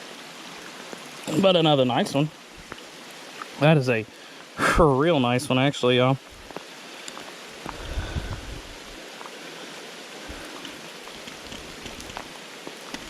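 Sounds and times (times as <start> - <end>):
creek water running: 0.0 - 13.0
rain hiss: 0.0 - 13.0
faint ticks: 6.5 - 8.4.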